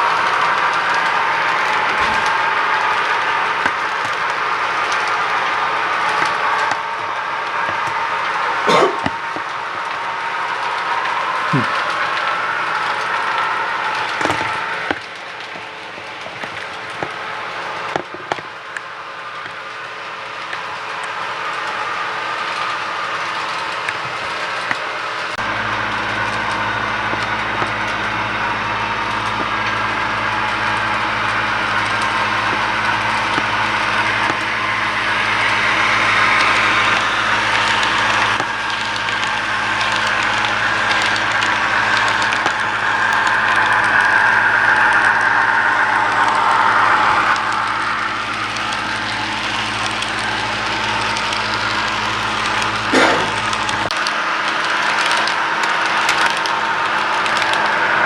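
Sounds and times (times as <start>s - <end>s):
model train locomotive running sound: 0.0s - 58.0s
low steady hum: 25.3s - 44.6s.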